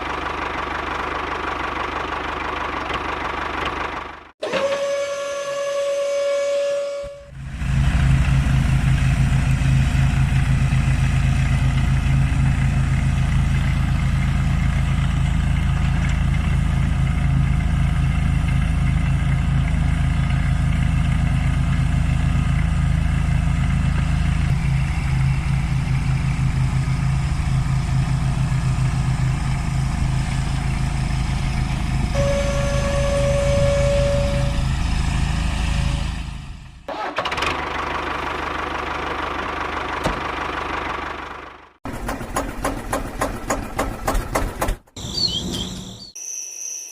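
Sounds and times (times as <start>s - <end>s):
engine chugging: 0.0s - 4.9s, 7.1s - 45.7s
high whine: 24.5s - 36.9s.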